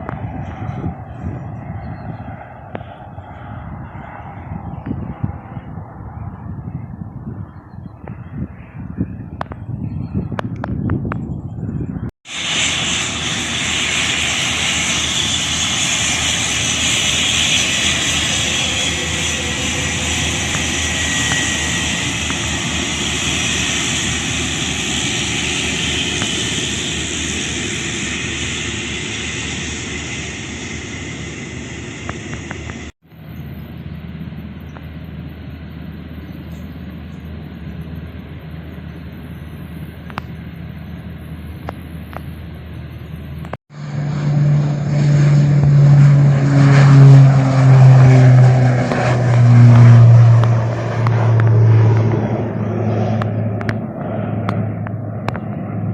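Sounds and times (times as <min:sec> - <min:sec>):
jet engines hissing: 0:11.4 - 0:55.9.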